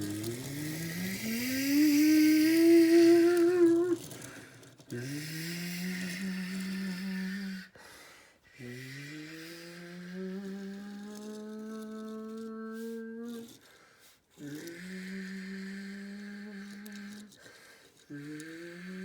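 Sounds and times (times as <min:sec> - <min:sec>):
man imitating jet engines: 0:00.0 - 0:04.2.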